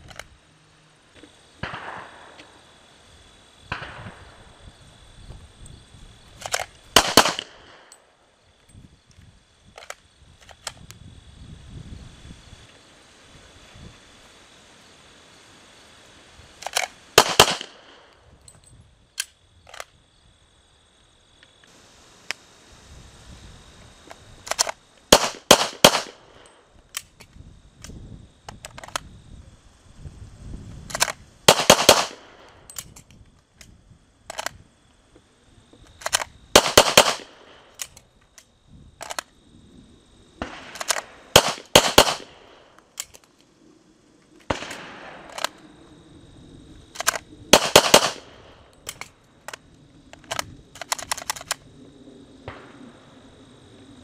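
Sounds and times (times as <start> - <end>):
pistol metallic clacks: 47.0 - 49.6, 50.2 - 51.6.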